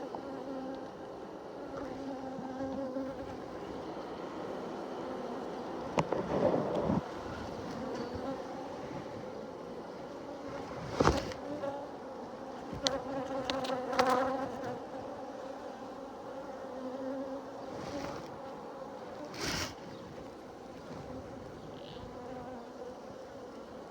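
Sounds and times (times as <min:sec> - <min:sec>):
honeybees buzzing: 0:00.0 - 0:23.9
rustling or knocking: 0:10.7 - 0:11.4.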